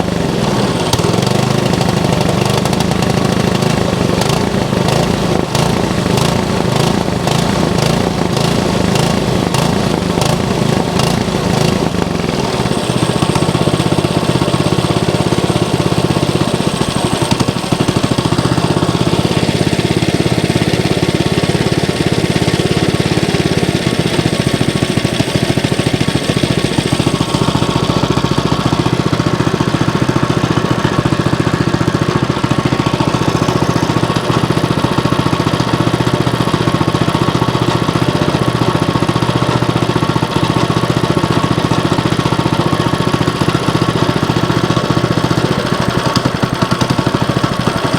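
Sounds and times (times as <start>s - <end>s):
small engine running: 0.0s - 47.9s.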